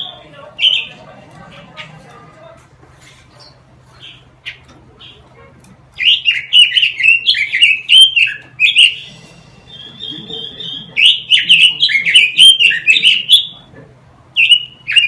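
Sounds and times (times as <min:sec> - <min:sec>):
thin steady bird note: 0:06.1 - 0:13.6.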